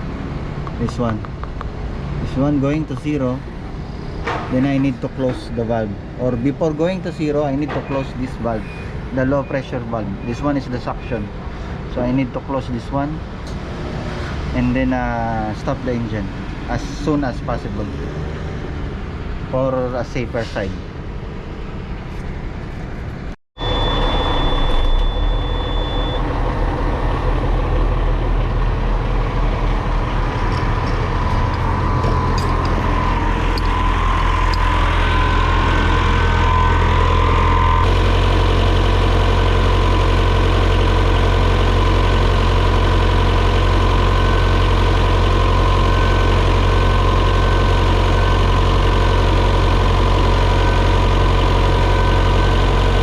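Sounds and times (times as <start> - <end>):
diesel engine idling: 23.6 - 53.0
compressor running: 23.7 - 53.0.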